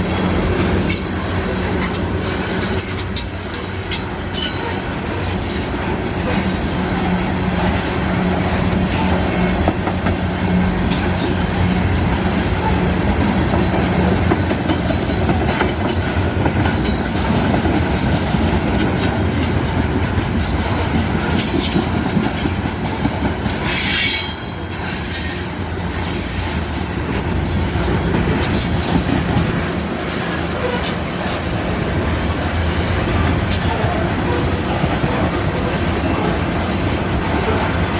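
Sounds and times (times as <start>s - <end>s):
freight train wheels clacking: 0.0s - 37.9s
high wheel squeal: 23.6s - 26.4s.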